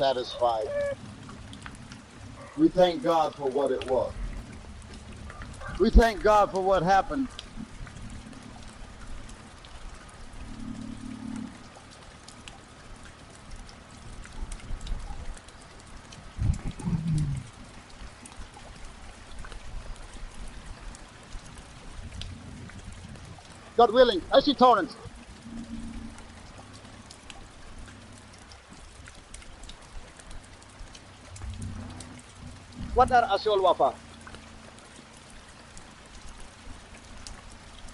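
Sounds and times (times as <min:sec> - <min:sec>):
low steady hum: 0:00.0 - 0:37.9
rain falling: 0:00.0 - 0:37.9
low rumble: 0:16.2 - 0:17.8.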